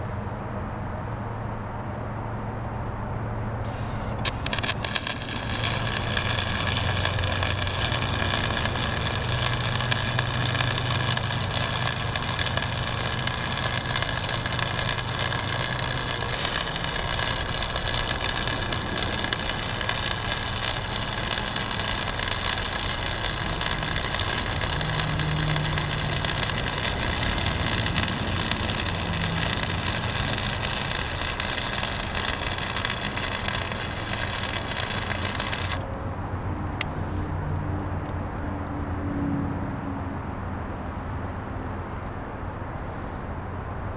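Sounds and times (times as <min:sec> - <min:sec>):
welder high hum: 0:03.6 - 0:35.9
welding arc crackling: 0:03.7 - 0:35.9.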